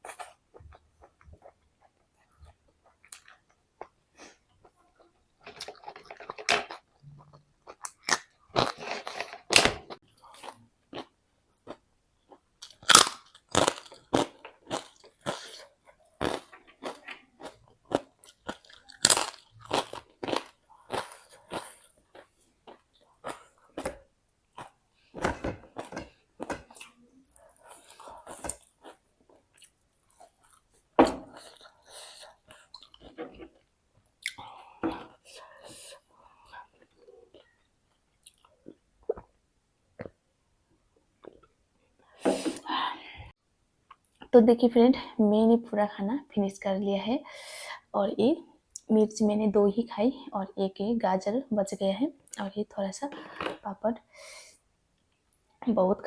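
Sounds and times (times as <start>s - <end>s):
person chewing crisp food: 0.0s - 4.8s, 5.4s - 39.4s.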